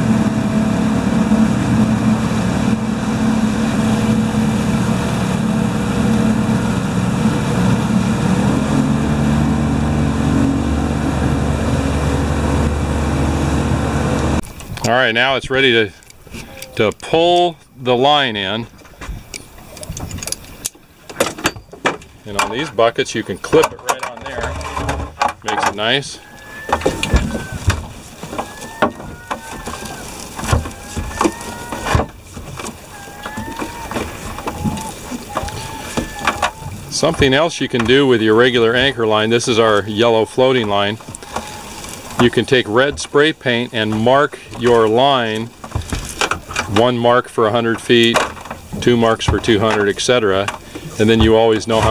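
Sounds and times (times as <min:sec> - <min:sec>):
boat engine running: 0:00.0 - 0:51.9
wooden knocks and thumps: 0:23.6 - 0:38.0, 0:45.6 - 0:46.9, 0:50.5 - 0:51.9.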